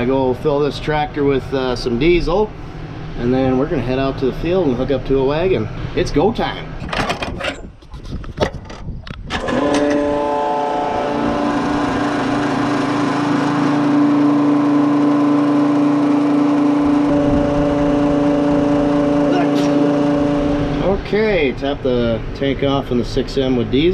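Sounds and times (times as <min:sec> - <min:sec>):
fuel pump humming: 0:09.3 - 0:21.2.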